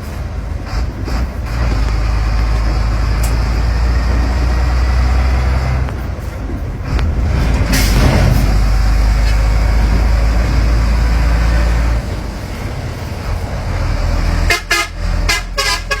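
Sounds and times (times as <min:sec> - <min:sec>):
truck diesel engine rumbling: 0:00.0 - 0:16.0
vehicle horn toots: 0:14.5 - 0:16.0.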